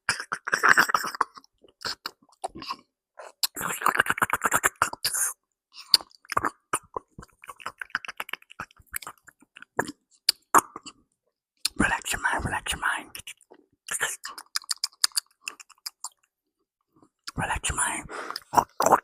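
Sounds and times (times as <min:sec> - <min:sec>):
person chewing food: 0:05.8 - 0:11.0, 0:14.2 - 0:16.3, 0:18.1 - 0:19.0.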